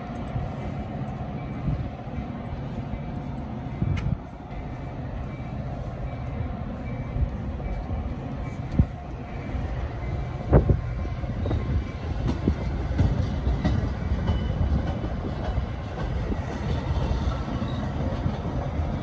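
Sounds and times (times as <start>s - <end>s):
train wheels rumbling on rail: 0.0s - 19.0s
wheels clicking over rail joints: 6.0s - 19.0s.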